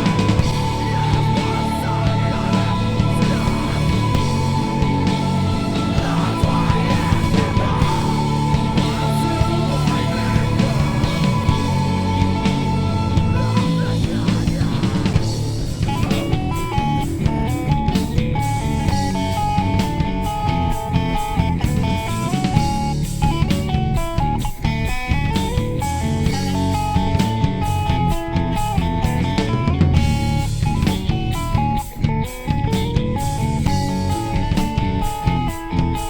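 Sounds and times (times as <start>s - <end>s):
lead guitar line: 0.0s - 36.0s
rock band playing live: 0.0s - 36.0s.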